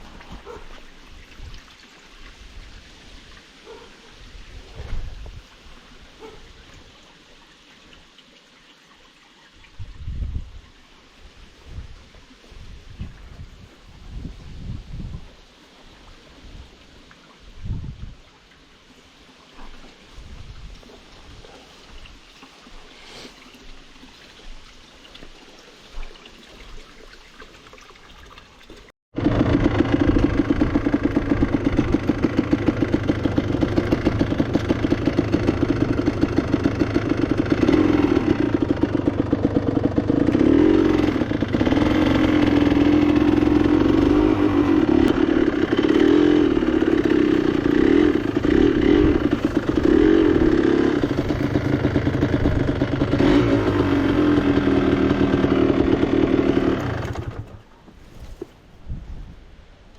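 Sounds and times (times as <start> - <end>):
motorcycle engine revving: 29.2 - 57.6.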